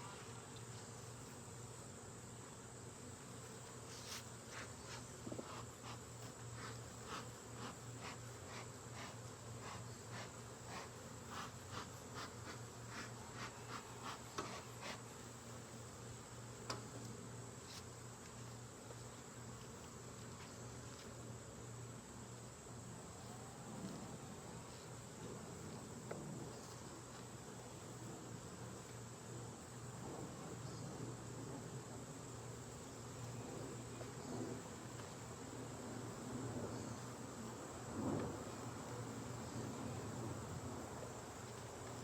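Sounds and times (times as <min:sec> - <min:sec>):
honeybees buzzing: 0:00.0 - 0:30.0.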